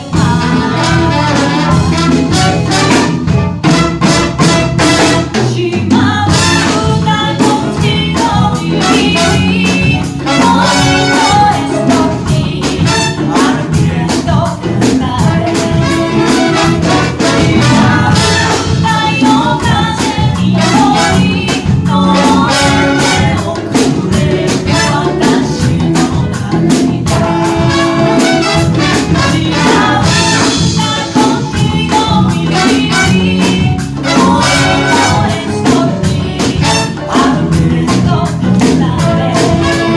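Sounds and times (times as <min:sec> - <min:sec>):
steady drum beat: 0:00.0 - 0:39.9
brass horns playing: 0:00.2 - 0:05.6, 0:06.3 - 0:07.2, 0:08.7 - 0:12.0, 0:12.8 - 0:13.8, 0:15.5 - 0:19.1, 0:20.5 - 0:23.6, 0:24.6 - 0:25.4, 0:27.1 - 0:31.3, 0:32.4 - 0:35.8, 0:36.6 - 0:37.5, 0:39.2 - 0:39.9.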